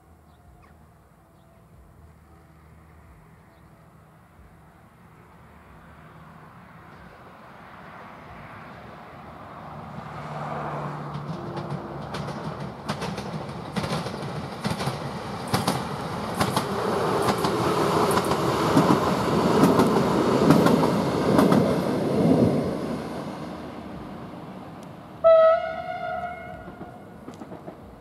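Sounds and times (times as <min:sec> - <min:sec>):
electric train passing: 0:00.0 - 0:28.0
train horn blast: 0:25.2 - 0:27.2.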